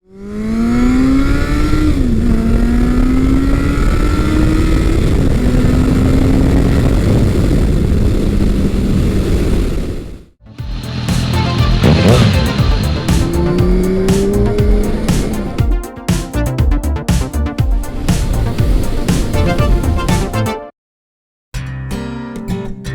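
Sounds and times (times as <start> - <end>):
motorcycle engine accelerating: 0.1 - 9.4, 10.5 - 17.5.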